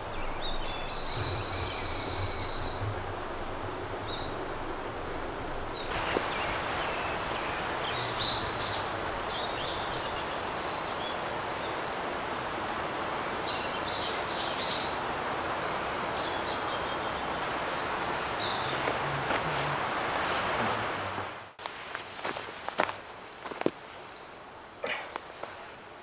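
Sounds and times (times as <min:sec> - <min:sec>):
bird chirping: 0:00.0 - 0:04.4
steady outdoor hiss: 0:00.0 - 0:26.0.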